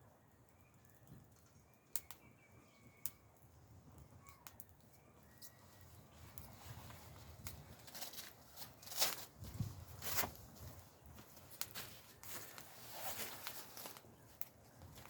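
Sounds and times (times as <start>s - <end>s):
campfire pops and crackles: 0.5s - 5.6s, 6.3s - 15.0s
faint bird calls: 4.0s - 5.9s.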